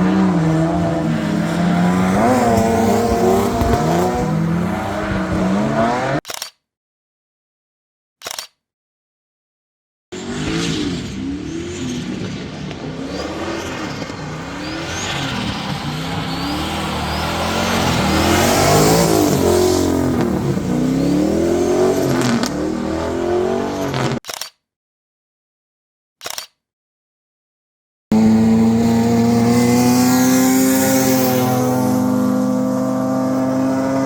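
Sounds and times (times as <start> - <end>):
car engine revving hard: 0.0 - 6.2, 10.2 - 24.2, 28.1 - 34.0.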